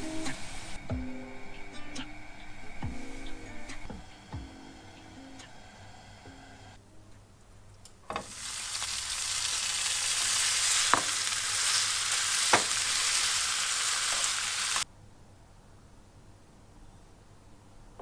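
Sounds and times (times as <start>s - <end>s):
steady hiss: 0.0s - 6.8s, 7.9s - 14.9s.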